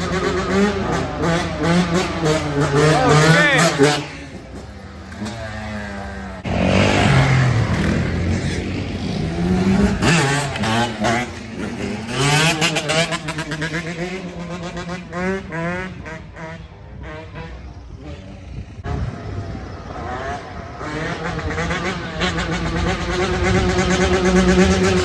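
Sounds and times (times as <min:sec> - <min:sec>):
motorbike engines revving: 0:00.0 - 0:25.0.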